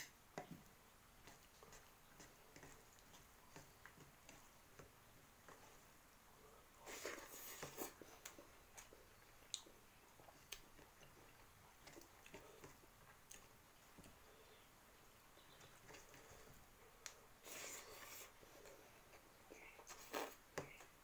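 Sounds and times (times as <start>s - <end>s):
faint chewing with mouth smacks: 0.3s - 5.8s, 6.8s - 14.6s.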